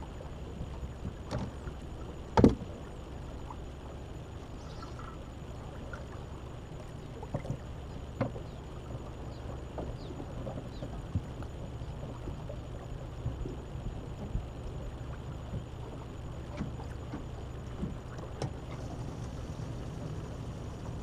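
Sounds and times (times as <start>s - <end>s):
gear knocking in boat: 0.6s - 2.8s, 9.4s - 21.0s.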